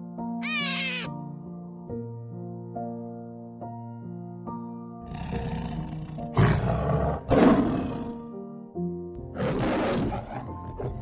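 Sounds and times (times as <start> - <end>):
soft piano music: 0.0 - 6.4, 8.0 - 9.4
lion calling hoarsely: 0.4 - 1.1.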